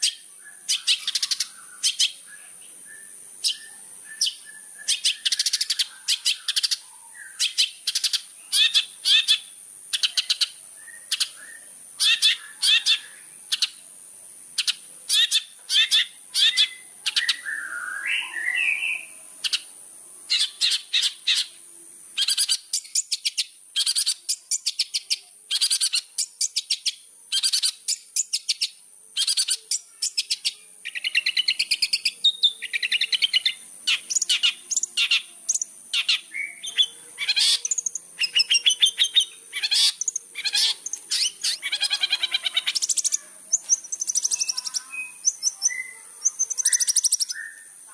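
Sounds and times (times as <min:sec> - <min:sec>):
shrike chattering song: 0:00.0 - 0:02.3, 0:22.2 - 0:47.9.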